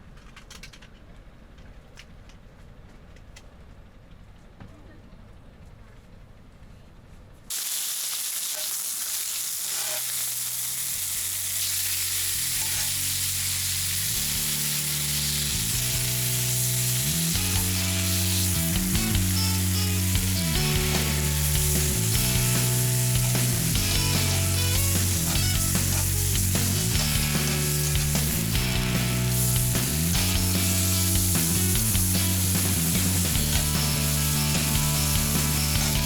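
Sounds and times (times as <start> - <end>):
food sizzling in a pan: 7.5 - 36.0
background music with bass line: 12.4 - 36.0.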